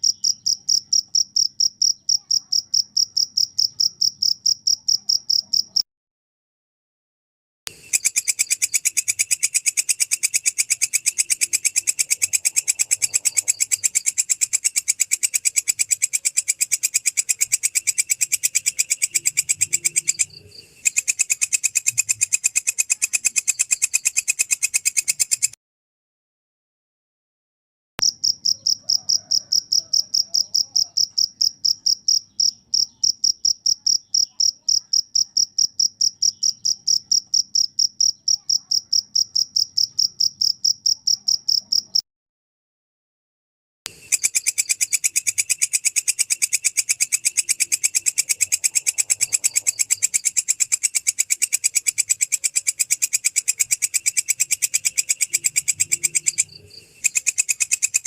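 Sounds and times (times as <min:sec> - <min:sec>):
cricket chirping: 0:00.0 - 0:05.8, 0:07.7 - 0:25.6, 0:28.0 - 0:42.0, 0:43.9 - 0:58.0
katydid harsh pulsing call: 0:07.8 - 0:25.4, 0:43.9 - 0:58.0.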